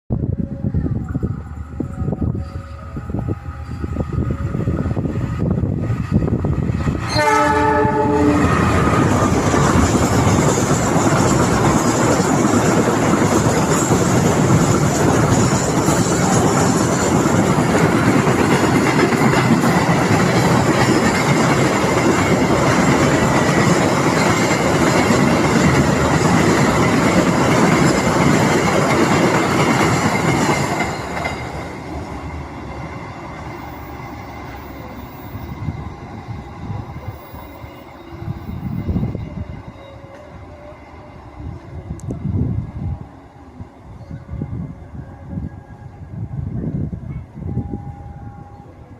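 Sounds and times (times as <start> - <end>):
freight train rumbling: 0.1 - 48.9
train horn blast: 7.1 - 9.0.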